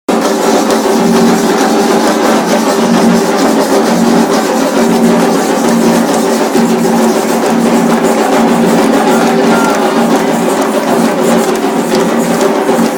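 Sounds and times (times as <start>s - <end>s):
rapid drum strokes: 0.1s - 12.9s
steady held tones: 6.1s - 12.9s.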